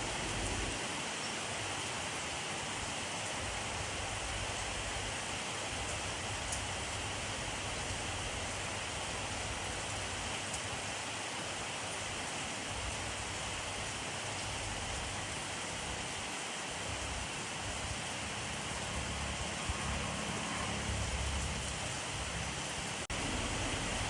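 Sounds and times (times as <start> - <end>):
rain falling: 0.0 - 24.0
faint raindrops: 3.2 - 24.0.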